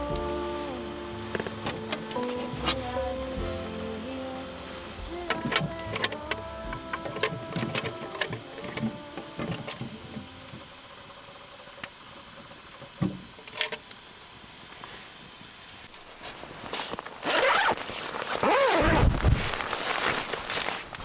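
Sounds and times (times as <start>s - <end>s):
background music: 0.0s - 10.6s
zipper pulled: 17.2s - 20.9s.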